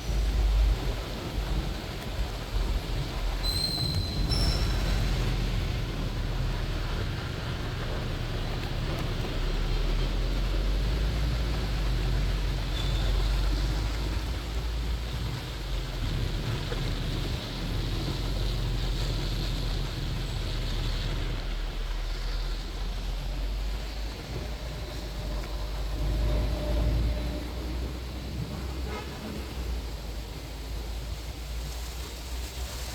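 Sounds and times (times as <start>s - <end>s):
bus engine rumbling: 0.0s - 32.9s
brief high squeal: 3.4s - 5.1s.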